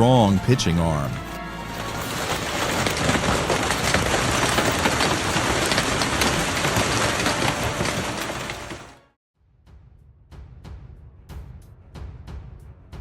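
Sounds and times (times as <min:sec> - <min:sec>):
hailstones pelting down: 0:00.0 - 0:09.1.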